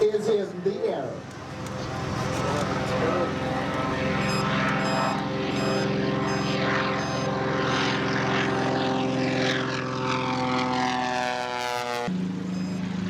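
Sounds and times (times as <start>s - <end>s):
propeller plane flying past: 1.0s - 13.0s.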